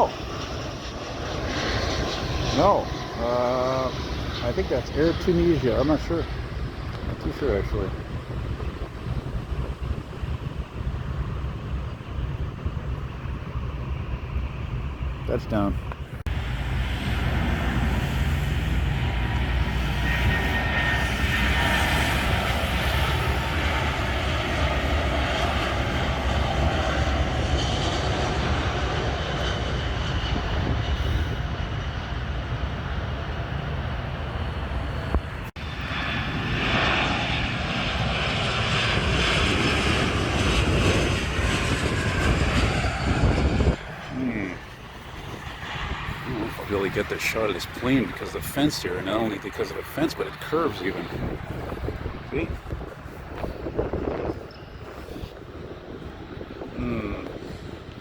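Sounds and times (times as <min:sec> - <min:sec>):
jet engines roaring: 0:00.0 - 0:58.0
faint high whine: 0:53.8 - 0:58.0.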